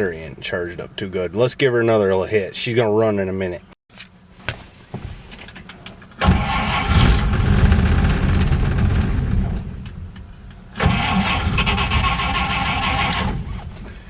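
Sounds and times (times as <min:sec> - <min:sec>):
car engine cranking and firing: 0:06.0 - 0:13.9.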